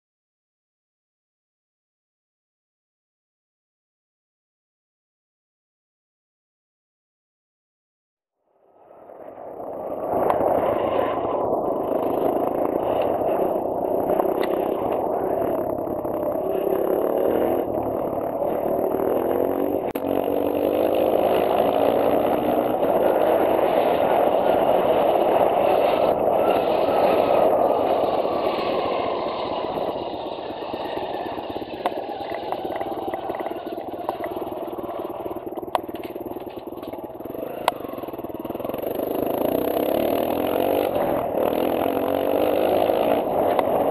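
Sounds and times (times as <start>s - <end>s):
dirt bike engine revving: 9.5s - 43.9s.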